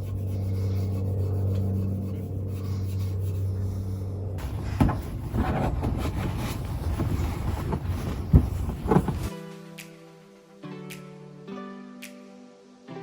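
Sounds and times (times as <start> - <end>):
steel wool scrubbing metal: 0.0 - 3.7
low hum: 0.0 - 9.3.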